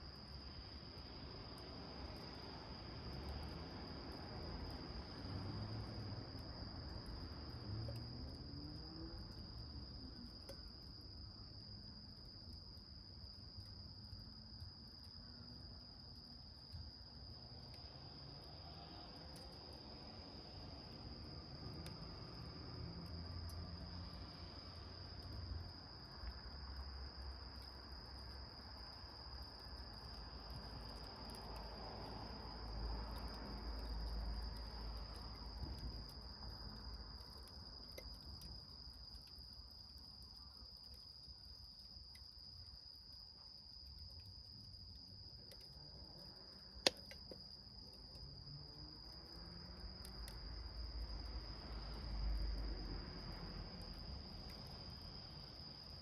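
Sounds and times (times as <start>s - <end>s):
small fire crackling: 0.0s - 56.0s
cricket trilling: 23.3s - 56.0s.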